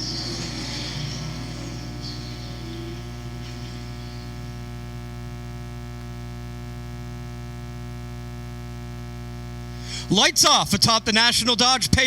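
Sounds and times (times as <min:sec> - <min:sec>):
race cars passing: 0:00.0 - 0:04.7
electrical mains hum: 0:00.0 - 0:12.0.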